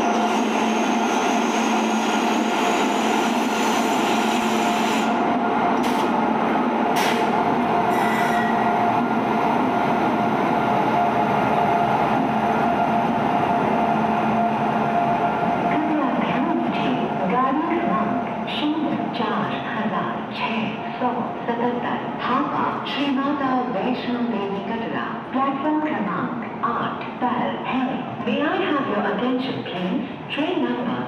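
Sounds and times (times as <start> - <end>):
electric locomotive hum: 0.0 - 24.7.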